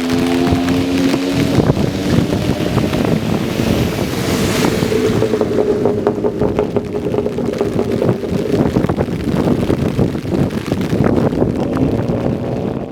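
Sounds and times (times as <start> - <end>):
car exhaust drone: 0.0 - 12.9
wind buffeting microphone: 0.0 - 12.9.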